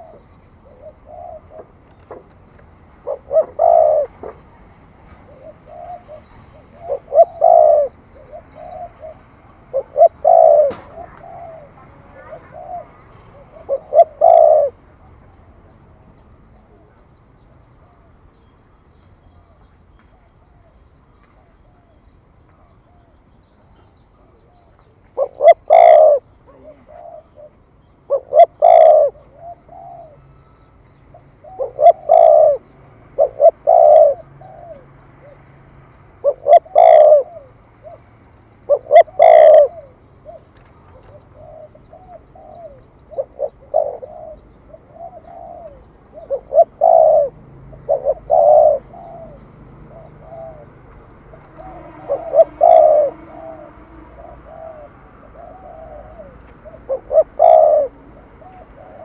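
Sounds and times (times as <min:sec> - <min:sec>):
dove cooing: 0:00.0 - 0:18.5, 0:22.6 - 0:35.5, 0:36.2 - 0:59.0.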